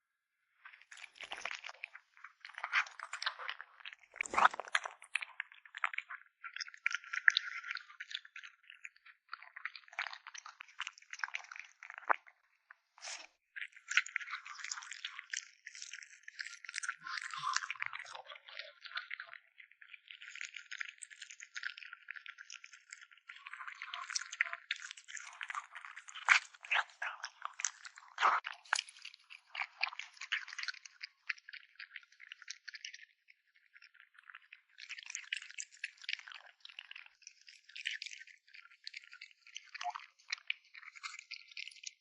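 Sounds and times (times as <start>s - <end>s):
cat crunching food: 0.9s - 5.9s.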